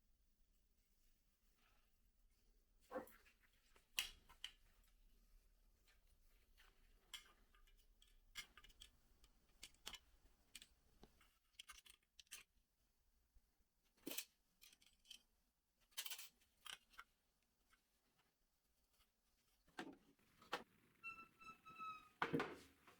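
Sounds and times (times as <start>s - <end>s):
small parts clicking: 11.5s - 12.5s.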